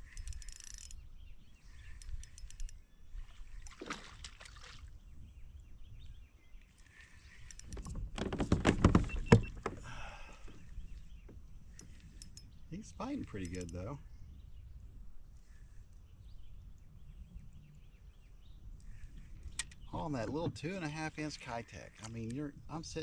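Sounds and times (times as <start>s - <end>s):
water splashing around kayak: 3.2s - 5.0s.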